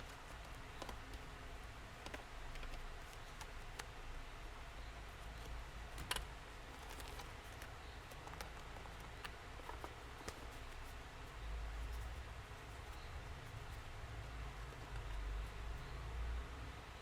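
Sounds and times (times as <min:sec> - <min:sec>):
light clicks and taps: 0:00.0 - 0:01.3, 0:01.9 - 0:04.0, 0:05.2 - 0:13.9
low background hum: 0:00.0 - 0:17.0.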